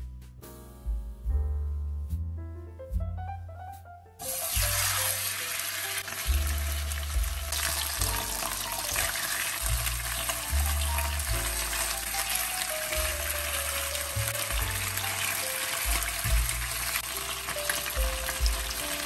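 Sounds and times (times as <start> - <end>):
food sizzling in hot oil: 4.2 - 19.0.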